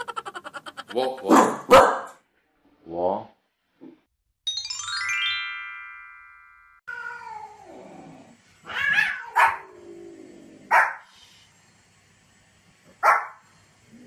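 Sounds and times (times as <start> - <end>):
small dog yapping barks: 1.3 - 2.2, 8.8 - 9.6, 10.7 - 11.0, 13.0 - 13.4
chiming transition sound: 4.5 - 6.9.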